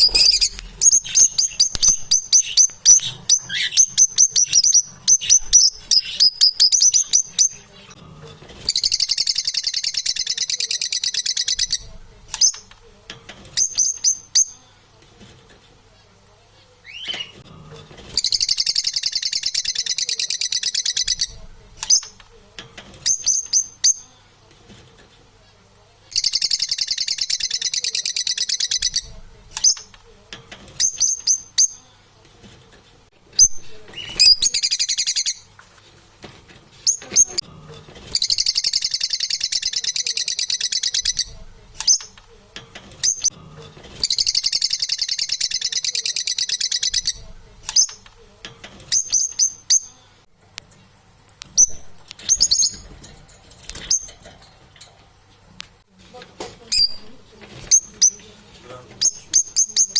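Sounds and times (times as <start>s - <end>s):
parrot sharp chirps: 0.0s - 7.6s, 26.1s - 29.9s, 38.2s - 42.2s, 44.0s - 48.0s.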